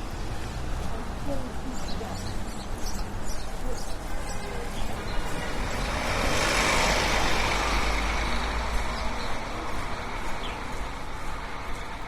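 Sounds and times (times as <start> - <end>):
motor vehicle driving past: 5.4 - 9.4.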